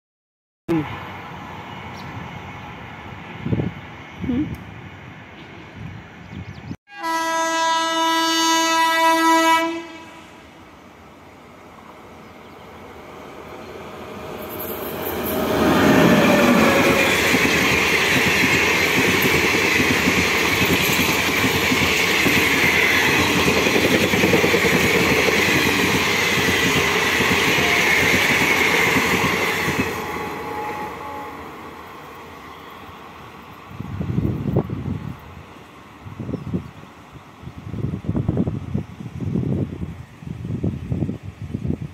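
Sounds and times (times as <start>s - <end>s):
train passing at speed: 0.7s - 6.2s, 6.9s - 41.9s
train horn blast: 6.9s - 10.4s, 30.1s - 31.7s.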